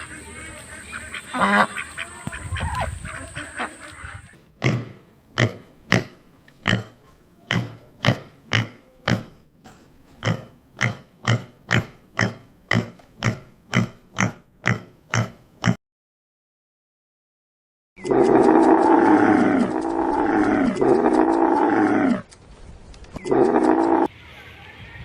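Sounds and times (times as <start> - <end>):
pig grunting: 10.2 - 15.8, 18.0 - 22.2, 23.2 - 24.1.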